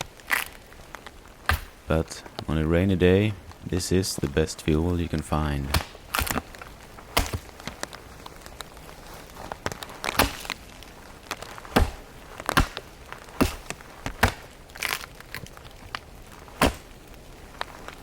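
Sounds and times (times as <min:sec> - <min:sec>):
wooden stump cracking: 0:00.0 - 0:18.0.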